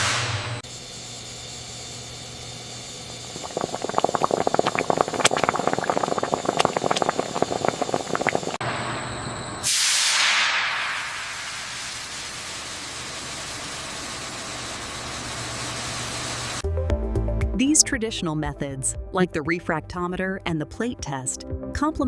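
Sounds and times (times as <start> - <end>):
jam bubbling and popping: 3.2 - 8.6
steam hissing: 3.2 - 8.6, 9.6 - 14.8.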